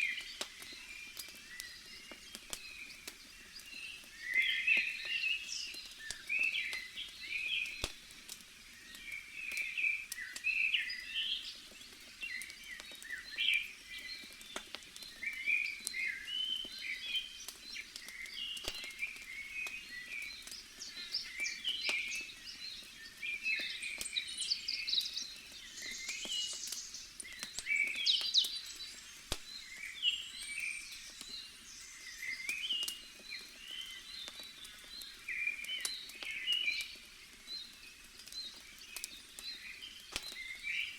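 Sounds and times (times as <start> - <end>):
campfire crackling: 0.1 - 40.9
bird chirps: 15.2 - 37.8.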